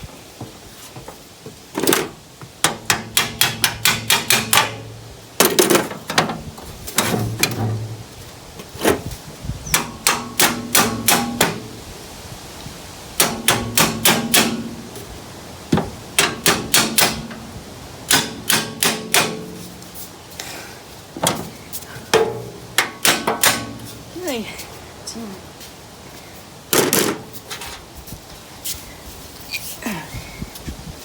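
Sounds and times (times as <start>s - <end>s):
hammer striking metal: 2.6s - 5.8s, 9.7s - 11.7s, 13.2s - 14.7s, 16.2s - 17.4s, 18.1s - 19.7s, 22.1s - 24.0s.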